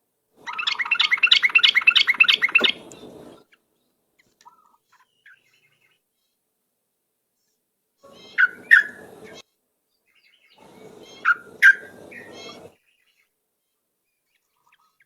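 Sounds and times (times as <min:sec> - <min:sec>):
bulbul singing: 0:00.5 - 0:03.4, 0:08.1 - 0:09.4, 0:10.6 - 0:12.7.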